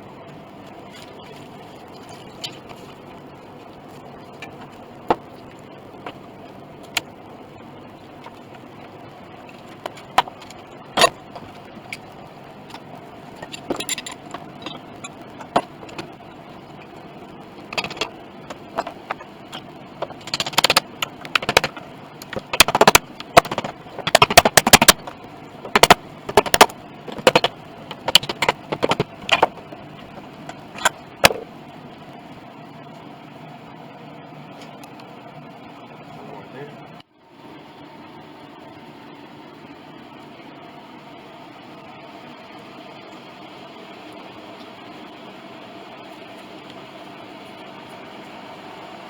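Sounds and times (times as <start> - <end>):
steady background hum: 0.0 - 49.0
clicks of small hard objects: 20.0 - 31.4.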